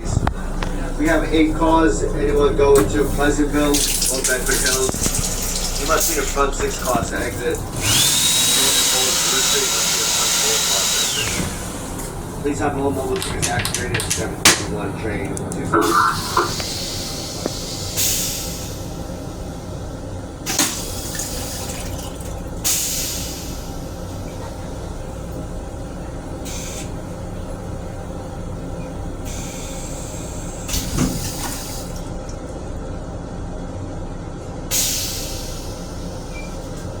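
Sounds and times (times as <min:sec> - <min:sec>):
steady low rumble: 0:00.0 - 0:08.4, 0:11.0 - 0:22.7
water running in hissing bursts: 0:03.6 - 0:12.1.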